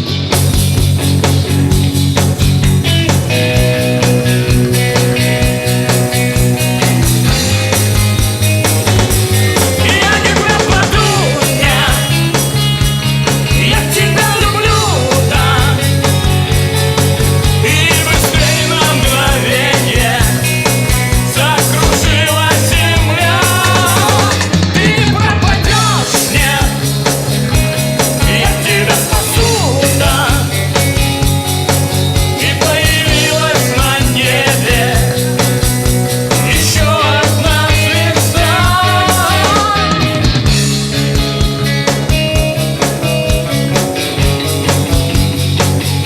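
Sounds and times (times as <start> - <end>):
bass guitar notes: 0.0 - 46.0
drums on a regular beat: 0.0 - 46.0
person singing: 9.2 - 12.6, 13.4 - 16.2, 17.5 - 26.9, 28.1 - 30.8, 32.2 - 35.5, 36.3 - 40.4.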